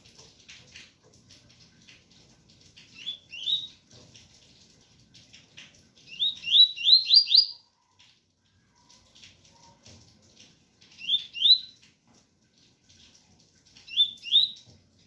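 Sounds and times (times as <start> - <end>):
rain patter: 0.0 - 15.0
bird singing rising notes: 6.1 - 7.6.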